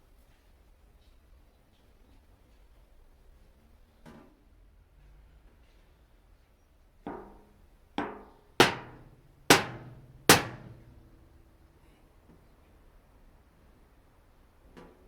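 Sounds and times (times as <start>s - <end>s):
hammer on screwdriver punching metal tin: 8.0s - 11.1s.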